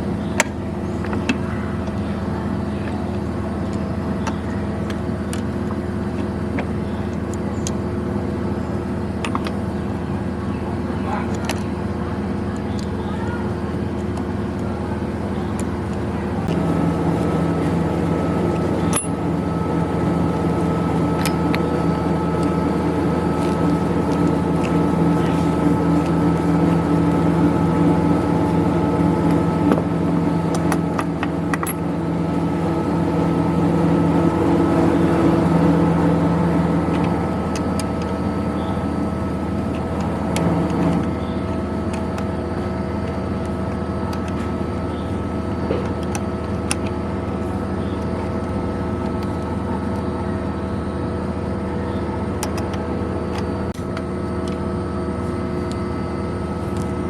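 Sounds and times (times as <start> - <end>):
low background drone: 0.0 - 57.0
small electric motor humming: 12.6 - 53.7.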